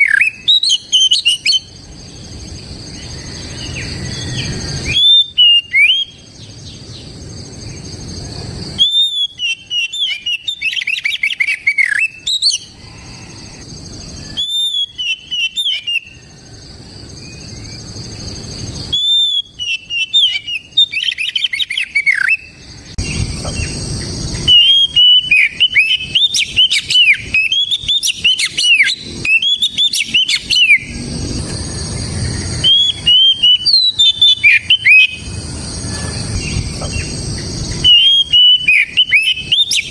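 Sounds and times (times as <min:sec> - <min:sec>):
bird singing whistled notes: 0:00.0 - 0:08.0, 0:08.7 - 0:31.0, 0:31.6 - 0:39.9
steady high hiss: 0:22.4 - 0:39.9.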